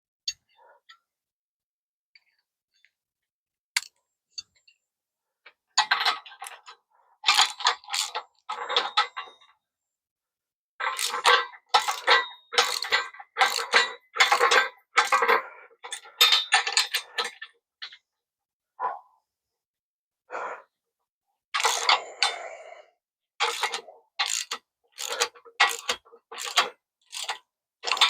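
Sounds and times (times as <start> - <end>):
metallic clattering of hand tools: 5.8 - 9.5, 10.8 - 18.0, 21.6 - 22.4, 23.4 - 28.0.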